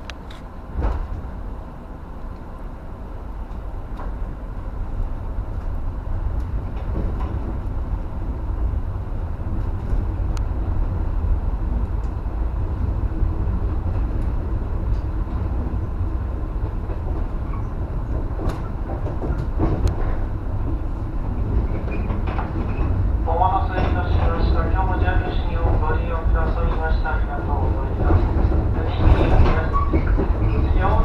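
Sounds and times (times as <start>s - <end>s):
train wheels rumbling on rail: 0.0s - 31.0s
wheels clicking over rail joints: 16.5s - 23.1s, 27.6s - 31.0s.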